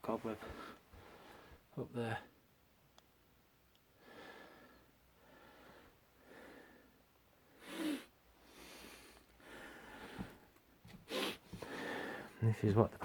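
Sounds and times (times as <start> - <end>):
person breathing: 0.4 - 1.7, 3.9 - 12.4.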